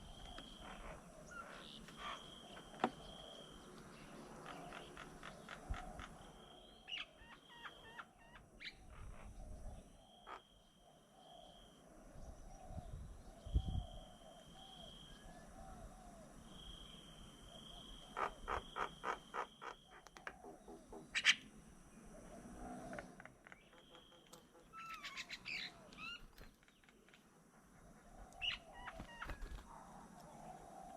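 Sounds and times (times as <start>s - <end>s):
birds chirping: 0.0s - 11.6s, 17.0s - 30.9s
bird chattering: 18.1s - 21.5s, 23.2s - 29.6s.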